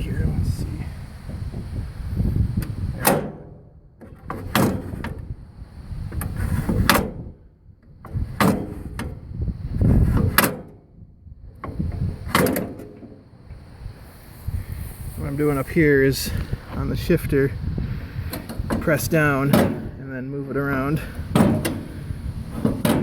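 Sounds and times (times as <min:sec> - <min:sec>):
sharp clunk: 0:03.0 - 0:05.2, 0:11.6 - 0:13.2, 0:21.3 - 0:21.9
mower shifter scraping rumble: 0:06.0 - 0:07.3, 0:09.8 - 0:10.8, 0:17.8 - 0:23.0.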